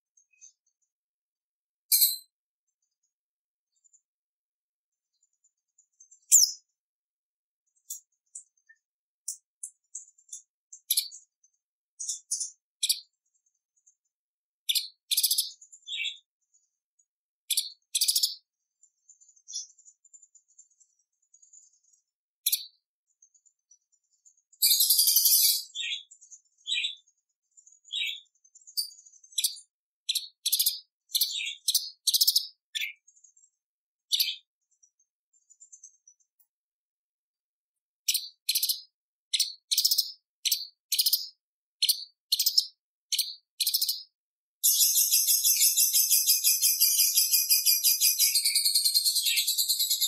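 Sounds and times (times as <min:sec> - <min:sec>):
faint high twittering: 0:07.7 - 0:36.6, 0:39.6 - 0:50.0.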